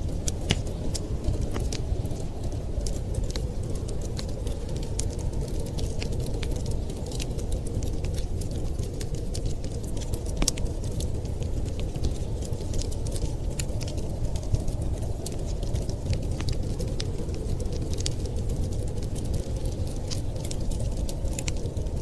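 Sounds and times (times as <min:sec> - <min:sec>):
fire popping: 0:00.0 - 0:22.0
wood fire crackling: 0:00.0 - 0:22.0.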